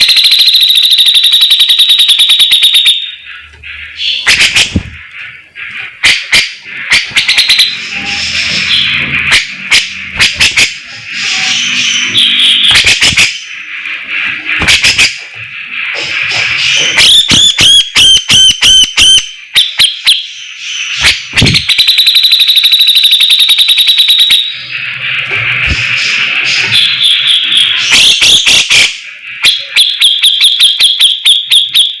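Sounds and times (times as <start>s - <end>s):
ringing whistled notes: 0.0s - 5.0s, 6.0s - 15.3s, 16.6s - 25.0s, 26.5s - 32.0s
fast buzzing trill: 6.0s - 20.2s.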